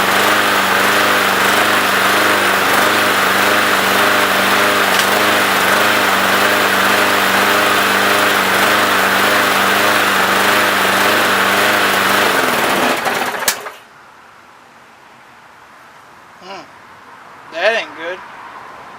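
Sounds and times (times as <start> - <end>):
lawnmower engine running and stalling: 0.0 - 13.8.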